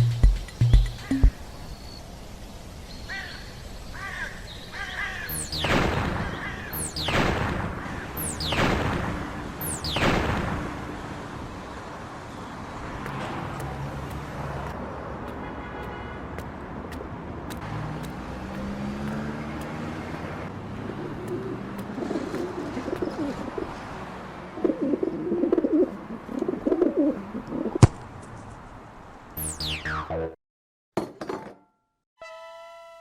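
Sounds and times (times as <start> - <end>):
birds cooing: 20.6 - 23.9, 24.5 - 27.8.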